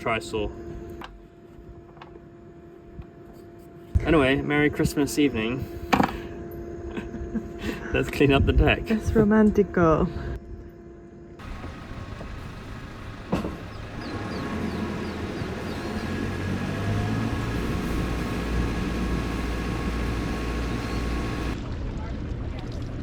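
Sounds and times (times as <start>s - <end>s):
boat engine running: 11.4s - 21.6s.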